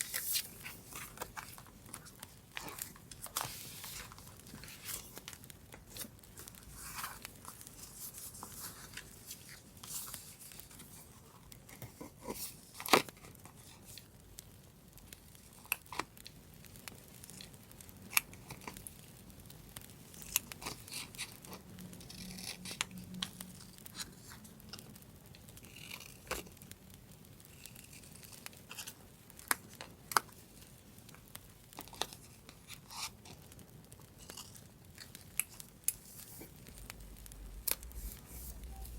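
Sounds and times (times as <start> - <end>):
paper rustling: 0.0 - 11.2, 35.6 - 38.9.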